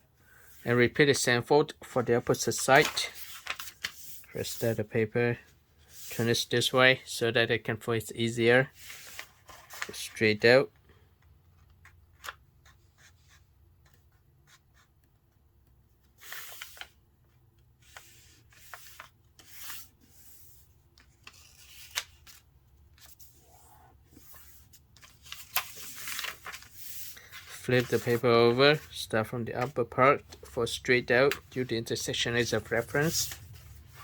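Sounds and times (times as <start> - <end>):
paper rustling and creasing: 1.9 - 4.8, 8.8 - 14.2, 16.0 - 34.0.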